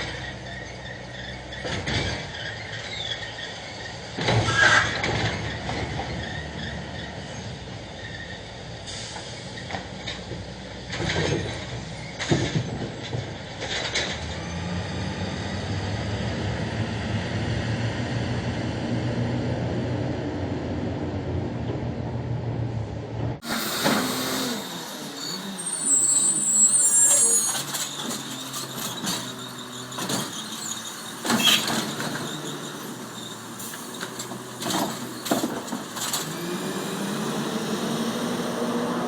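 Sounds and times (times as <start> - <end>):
loud squeal: 0.1 - 9.7, 23.4 - 35.5
garbage truck engine running: 23.2 - 39.0.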